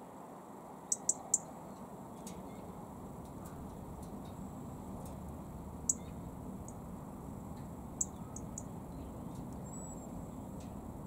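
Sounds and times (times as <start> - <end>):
high-pitched bird chirps: 0.9 - 1.5, 5.9 - 6.2
low background rumble: 1.8 - 11.0.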